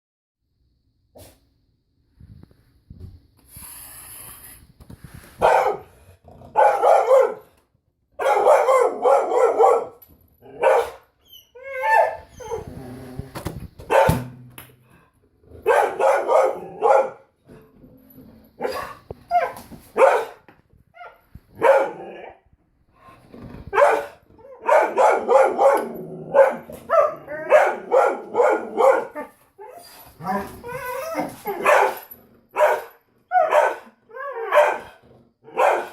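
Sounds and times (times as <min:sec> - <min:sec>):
dog barking: 0:05.4 - 0:07.5, 0:08.2 - 0:10.0, 0:10.6 - 0:11.1, 0:13.9 - 0:14.2, 0:15.6 - 0:17.3, 0:18.6 - 0:20.4, 0:21.6 - 0:22.3, 0:23.7 - 0:29.3, 0:31.6 - 0:35.9.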